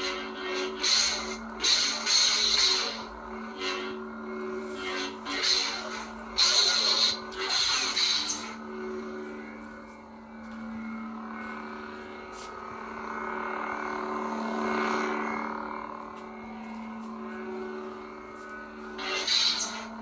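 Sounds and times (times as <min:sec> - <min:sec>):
lightsaber electric hum: 0:00.0 - 0:20.0
lightsaber swing: 0:00.1 - 0:04.0, 0:04.7 - 0:08.6, 0:18.5 - 0:20.0.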